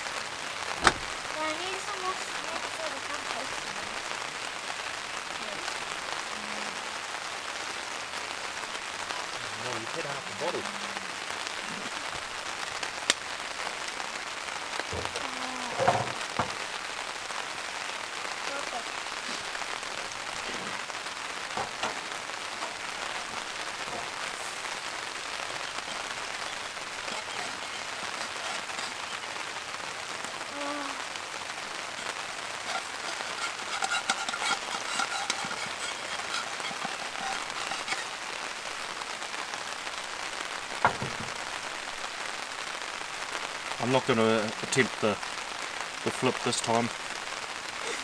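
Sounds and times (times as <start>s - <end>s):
rain on a tarp: 0.0s - 48.0s.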